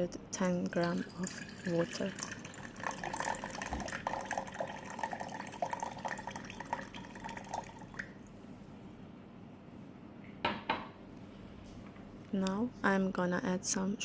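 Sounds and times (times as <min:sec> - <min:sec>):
water trickling into container: 0:00.6 - 0:08.2.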